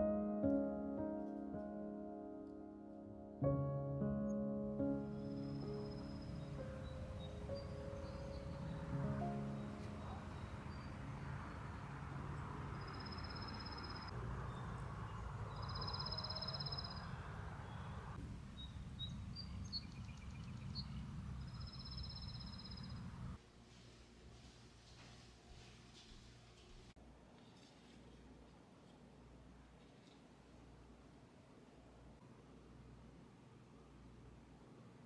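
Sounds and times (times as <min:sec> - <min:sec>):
steady background hiss: 0:05.0 - 0:35.0
bird short chirps: 0:15.5 - 0:18.0.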